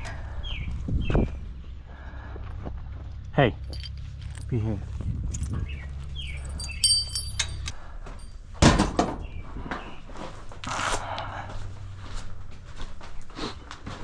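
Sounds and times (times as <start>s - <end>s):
metallic clinking: 3.6s - 4.5s, 6.2s - 8.3s
door shutting with thud: 8.6s - 9.3s.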